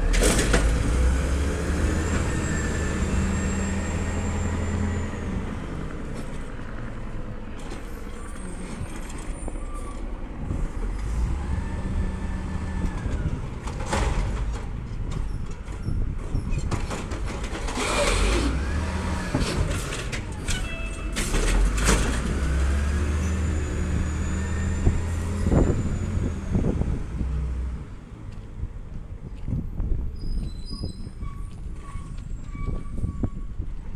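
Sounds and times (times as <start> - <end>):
garbage truck engine revving: 0.0 - 5.6, 17.6 - 20.2, 21.2 - 27.8
hydraulic whine: 17.8 - 19.7
metal clanks and bangs: 19.3 - 22.4.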